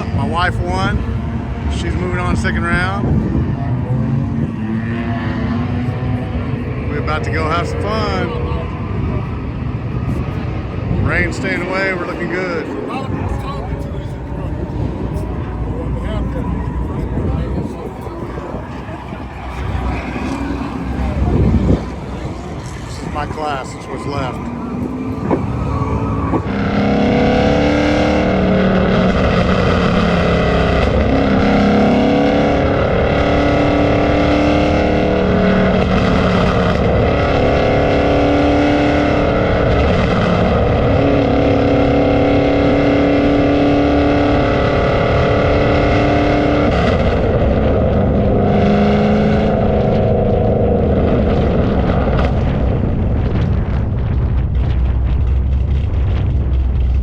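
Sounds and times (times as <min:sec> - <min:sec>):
car engines running: 0:00.0 - 0:57.0.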